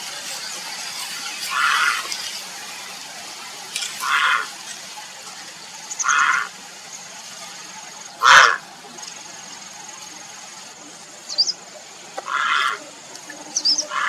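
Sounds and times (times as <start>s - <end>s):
heron croaking calls: 1.5s - 2.0s, 4.0s - 4.5s, 6.0s - 6.6s, 8.2s - 8.6s, 12.2s - 12.9s, 13.6s - 14.0s
small bird chirping: 11.2s - 11.6s, 13.4s - 14.0s.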